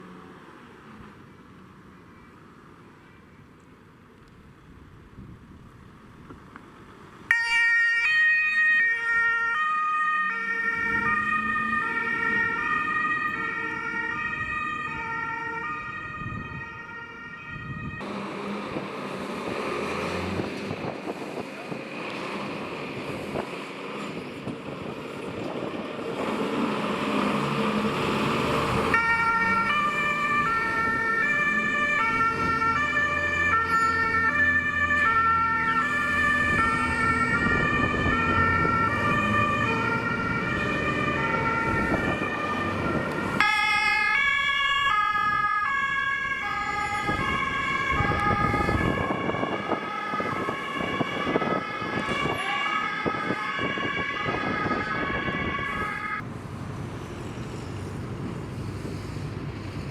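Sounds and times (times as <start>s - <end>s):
truck engine: 0.0s - 59.9s
two-tone siren: 7.3s - 18.1s, 28.8s - 56.2s
warbling two-tone siren: 7.3s - 18.1s, 28.8s - 56.2s.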